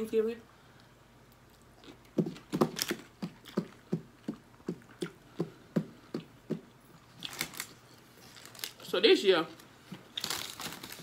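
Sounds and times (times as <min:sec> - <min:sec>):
soft wet chewing: 0:01.2 - 0:08.7.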